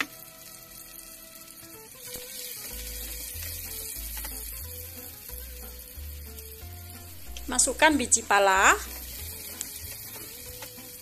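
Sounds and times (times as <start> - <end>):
food sizzling in hot oil: 0.0 - 11.0
background music with bass: 2.7 - 11.0.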